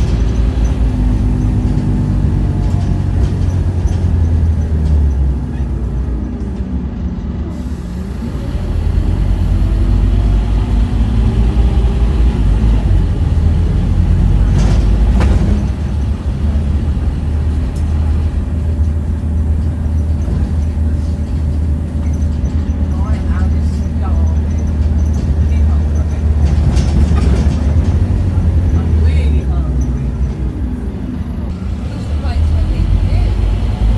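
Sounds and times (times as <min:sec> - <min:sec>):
bus diesel engine running: 0:00.0 - 0:33.9
air hiss: 0:07.6 - 0:10.4.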